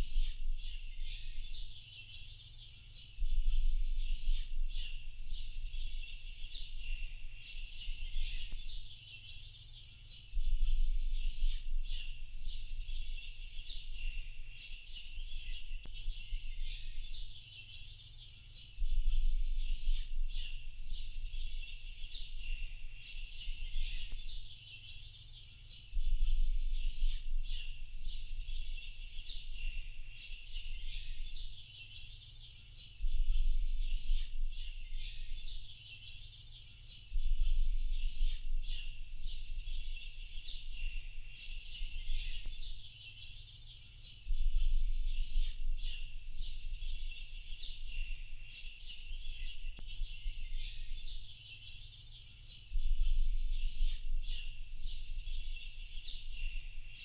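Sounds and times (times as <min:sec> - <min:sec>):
small birds chirping and singing: 0:00.0 - 0:57.0.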